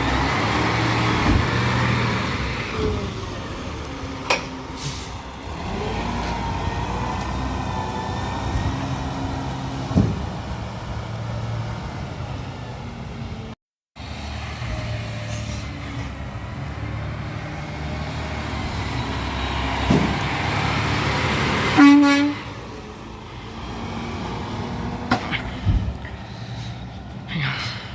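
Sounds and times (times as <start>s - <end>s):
garbage truck running: 0.0s - 27.3s
horn toot: 21.7s - 22.5s.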